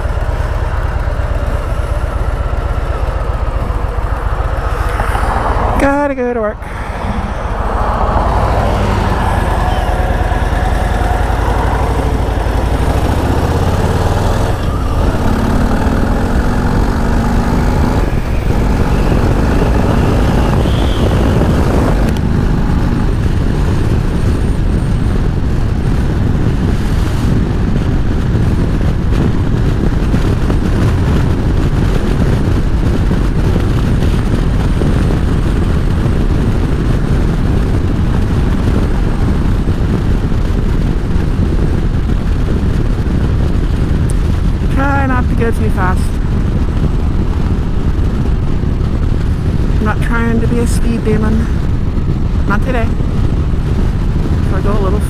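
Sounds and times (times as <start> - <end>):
motorcycle engine riding: 0.0 - 55.0
road noise rushing: 0.0 - 55.0.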